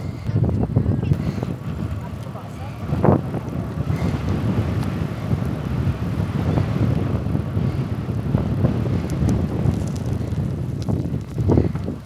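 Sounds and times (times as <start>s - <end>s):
bicycle tyres rolling: 0.0s - 12.0s
wind rumble on microphone: 0.0s - 12.0s.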